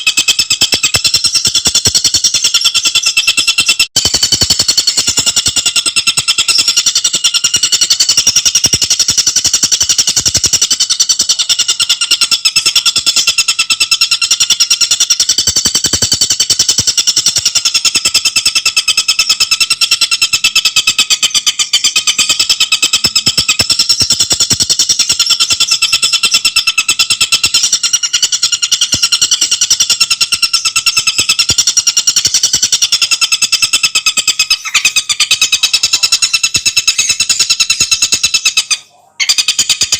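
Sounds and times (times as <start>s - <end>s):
bird rattling trill: 0.0s - 39.9s.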